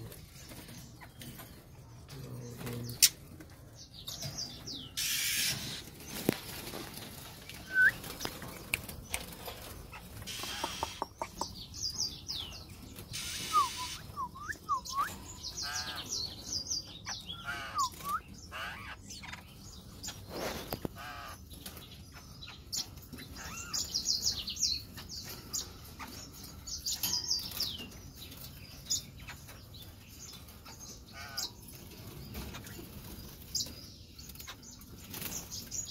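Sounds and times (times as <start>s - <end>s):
caged birds chirping: 0.0s - 35.9s
wings fluttering: 5.0s - 11.2s
whistled notes: 7.7s - 8.1s.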